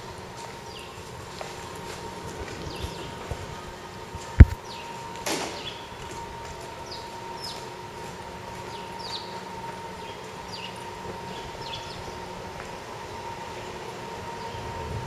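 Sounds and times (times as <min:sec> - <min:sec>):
faint even whine: 0:00.0 - 0:15.0
steady background hum: 0:00.0 - 0:15.0
small birds chirping: 0:00.6 - 0:01.2, 0:02.6 - 0:03.6, 0:04.6 - 0:06.0, 0:06.8 - 0:07.8, 0:08.6 - 0:12.4.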